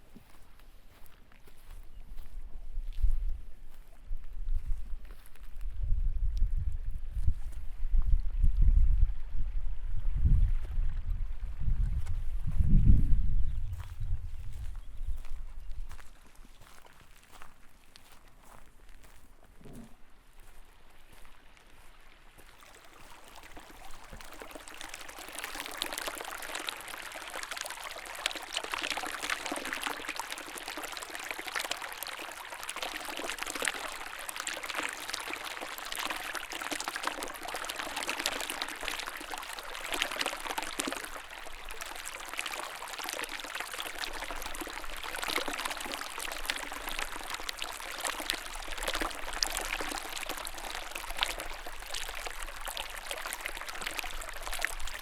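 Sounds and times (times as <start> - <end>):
stream flowing: 19.9 - 55.0.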